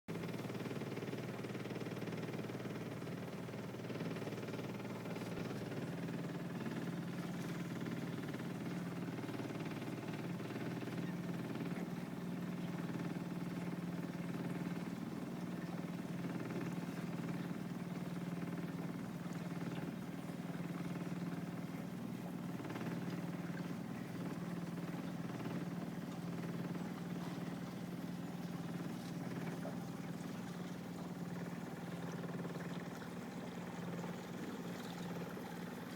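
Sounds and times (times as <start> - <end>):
boat engine droning: 0.1 - 35.9.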